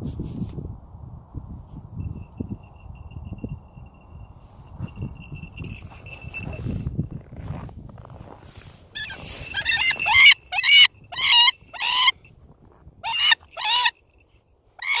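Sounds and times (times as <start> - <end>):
bird harsh calls: 9.0 - 12.2, 13.0 - 13.9.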